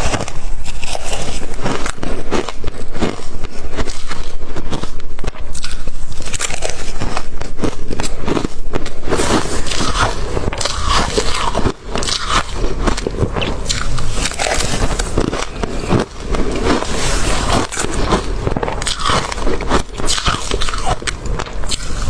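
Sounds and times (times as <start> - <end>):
crunching and chewing ice: 0.0 - 22.0.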